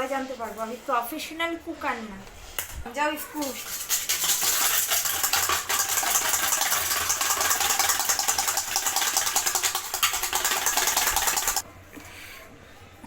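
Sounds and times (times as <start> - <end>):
mixer grinder whirring: 3.6 - 11.6.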